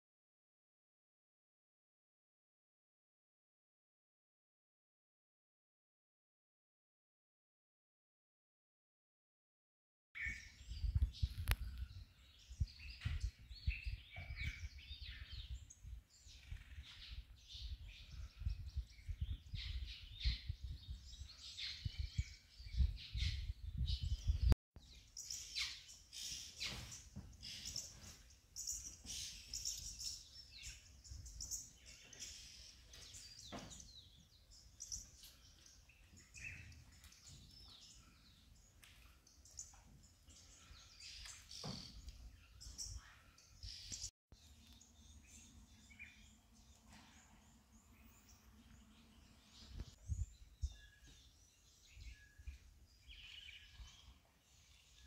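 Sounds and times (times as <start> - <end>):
wild birds chirping: 10.2 - 55.0.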